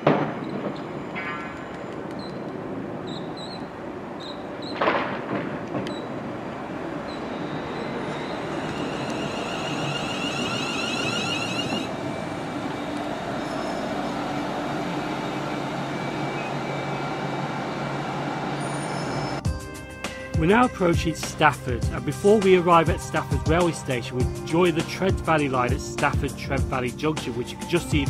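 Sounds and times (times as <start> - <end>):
train wheels rumbling: 0.0 - 19.4
faint high whine: 7.0 - 19.4.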